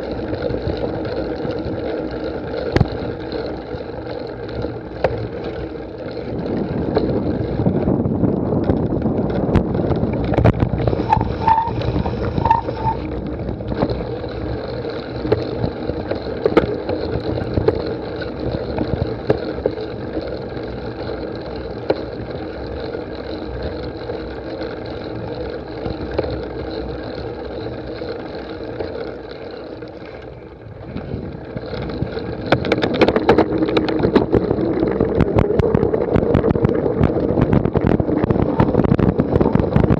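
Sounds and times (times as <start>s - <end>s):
bike rattling over rough ground: 0.0s - 39.9s
wind on microphone: 6.2s - 14.6s, 30.6s - 39.9s.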